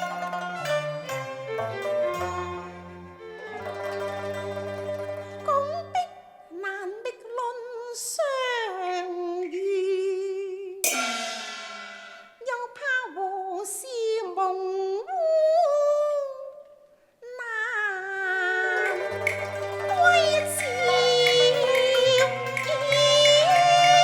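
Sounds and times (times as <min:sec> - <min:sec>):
opera accompaniment music: 0:00.0 - 0:06.3, 0:18.2 - 0:24.0
cymbal crash: 0:10.8 - 0:12.5.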